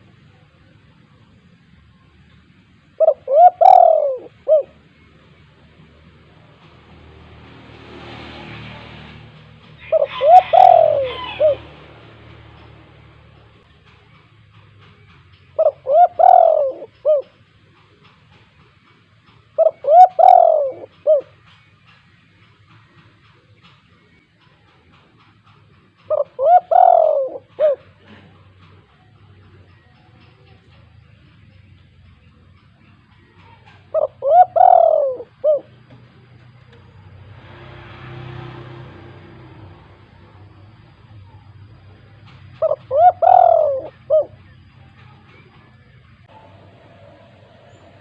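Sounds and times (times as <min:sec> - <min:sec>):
dove cooing: 0:03.0 - 0:04.8, 0:09.8 - 0:12.8, 0:15.6 - 0:17.4, 0:19.6 - 0:21.4, 0:26.0 - 0:28.7, 0:33.4 - 0:35.9, 0:41.2 - 0:45.5.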